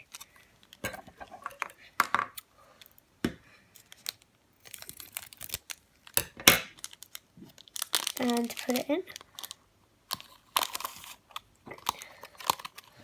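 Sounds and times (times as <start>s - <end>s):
plastic rustling: 2.8s - 13.0s.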